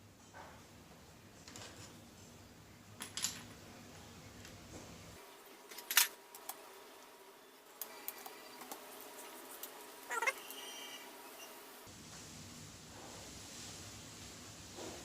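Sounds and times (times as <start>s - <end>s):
metal tools and parts clinking: 3.0s - 3.5s, 5.7s - 6.2s.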